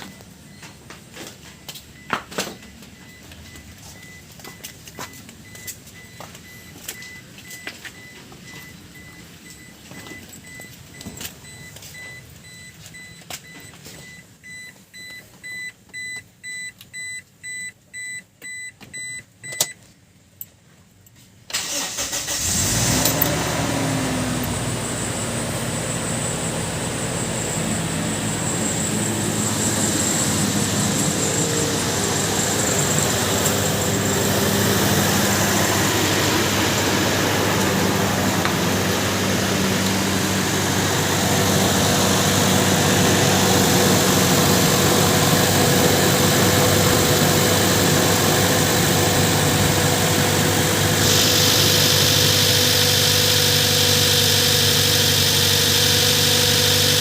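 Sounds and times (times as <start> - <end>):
car engine starting and idling: 0.0 - 16.4, 21.4 - 57.0.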